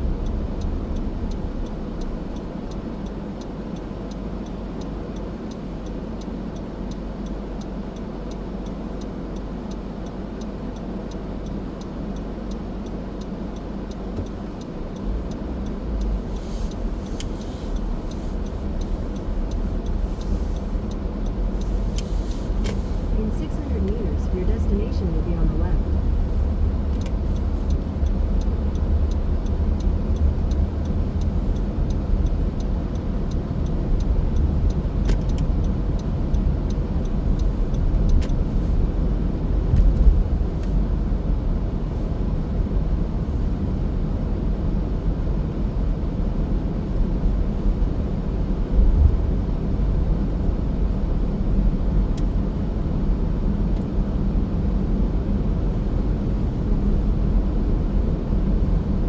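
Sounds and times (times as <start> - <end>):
faint ticks: 0.0 - 24.8, 25.8 - 39.1, 51.5 - 53.0
car engine and tyre noise: 0.0 - 59.0.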